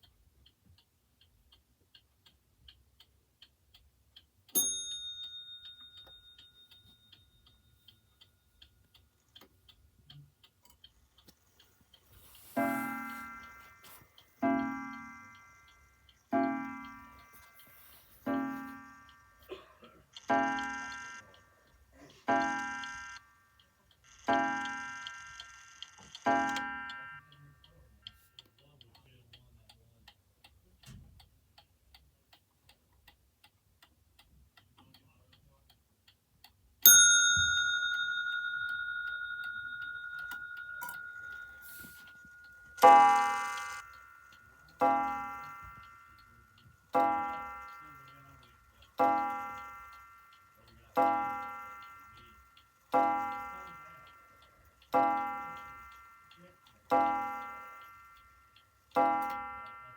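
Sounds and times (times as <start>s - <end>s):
mantel clock ticking: 0.0s - 59.9s
clock bell striking: 4.6s - 7.6s, 12.2s - 15.6s, 16.3s - 19.0s, 26.3s - 27.2s, 36.8s - 59.9s
clock gong strikes: 44.8s - 46.0s, 47.0s - 47.8s, 49.0s - 50.0s, 50.9s - 52.1s, 52.9s - 54.2s, 54.9s - 56.1s, 59.0s - 59.9s.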